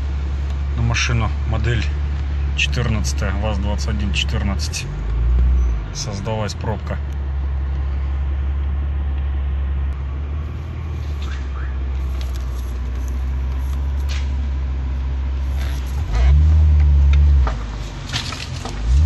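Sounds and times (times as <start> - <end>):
car engine idling: 0.0 - 19.0
street traffic noise: 0.0 - 19.0.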